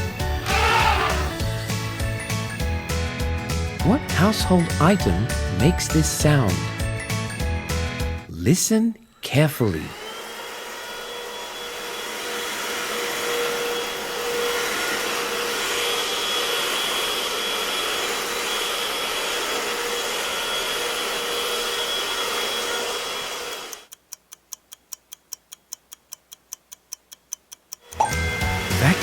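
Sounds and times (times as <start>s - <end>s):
vacuum cleaner whining: 0.0s - 1.5s, 9.6s - 23.9s, 27.9s - 29.0s
clock ticking quickly: 23.7s - 28.0s.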